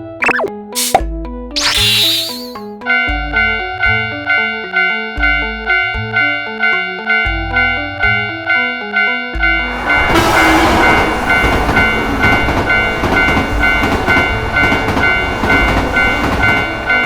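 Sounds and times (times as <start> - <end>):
level crossing alarm clanging: 1.6 - 17.0
train rumbling and rattling past: 9.6 - 17.0.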